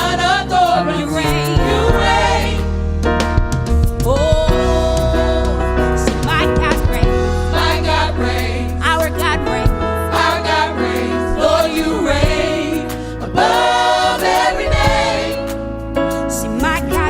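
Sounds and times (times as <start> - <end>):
gospel choir singing: 0.0 - 2.8, 4.2 - 15.8
band accompaniment with bass: 0.0 - 17.0.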